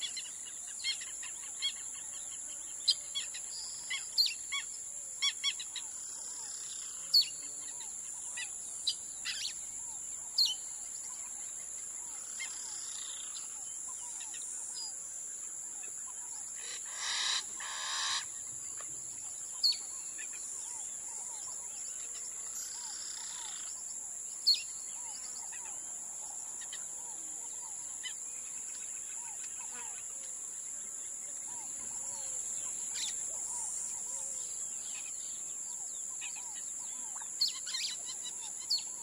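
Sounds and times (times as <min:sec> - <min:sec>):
insect drone: 0:00.0 - 0:39.0
bird two-part call: 0:16.6 - 0:18.3.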